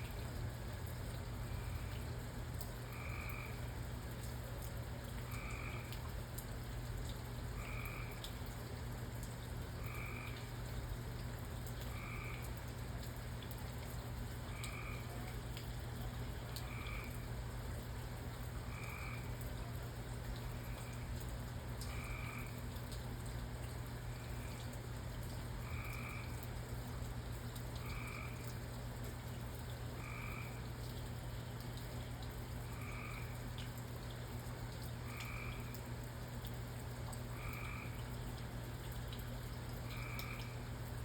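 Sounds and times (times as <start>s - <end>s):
sharp drip ticks: 0.0s - 41.0s
frog calling: 2.9s - 3.6s, 7.6s - 8.3s, 9.8s - 10.5s, 11.9s - 12.6s, 14.5s - 15.2s, 16.6s - 17.2s, 18.7s - 19.4s, 21.8s - 22.6s, 25.6s - 26.4s, 27.8s - 28.5s, 30.0s - 30.6s, 32.7s - 33.4s, 35.1s - 35.8s, 37.4s - 38.0s, 39.9s - 40.6s.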